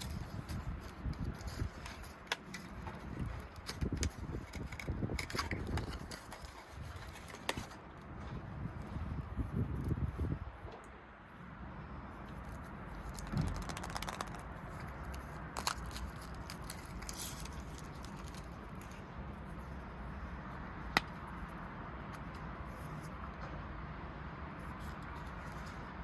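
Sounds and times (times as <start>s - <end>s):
small objects being handled: 0.0s - 7.8s, 12.2s - 19.7s.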